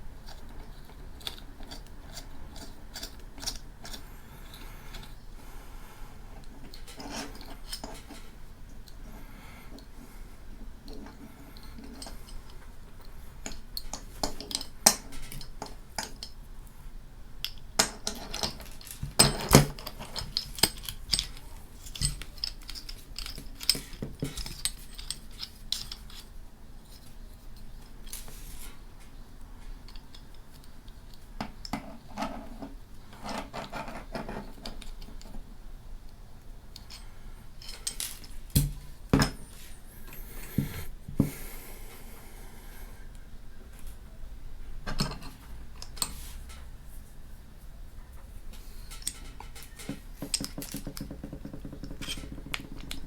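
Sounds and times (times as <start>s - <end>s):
small metal and plastic parts clicking: 0.2s - 5.2s, 6.4s - 9.0s, 10.8s - 16.4s, 17.4s - 28.3s, 36.7s - 38.8s, 48.8s - 53.0s.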